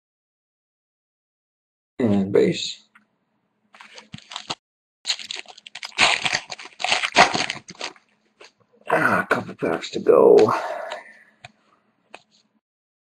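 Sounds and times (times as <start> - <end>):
foil wrapper crinkling and tearing: 3.8 - 8.5.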